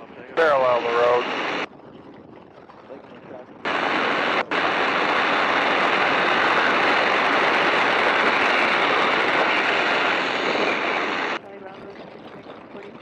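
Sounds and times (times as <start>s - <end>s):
airplane engine: 0.0s - 1.7s, 3.6s - 11.4s
wind rushing: 3.7s - 11.4s.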